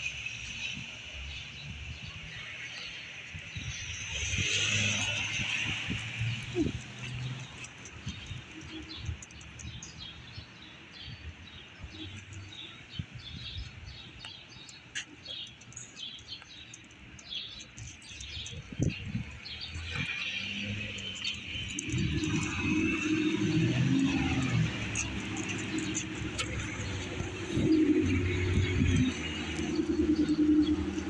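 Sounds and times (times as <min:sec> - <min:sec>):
small birds chirping: 0:00.2 - 0:31.0
car approaching: 0:17.2 - 0:31.0.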